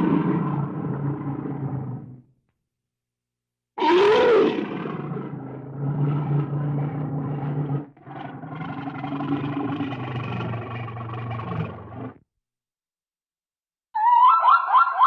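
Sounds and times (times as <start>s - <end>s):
large animal roaring: 0.0s - 2.2s, 3.8s - 12.2s.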